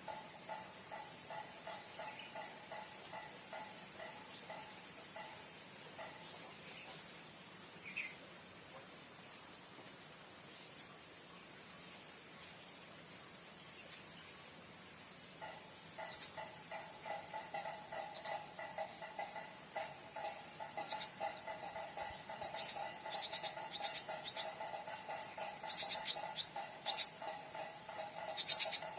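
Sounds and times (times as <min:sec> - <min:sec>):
insects trilling: 0:00.0 - 0:28.9
low rapid pulsing insect chorus: 0:00.0 - 0:28.9
sharp high chirps: 0:20.8 - 0:28.9.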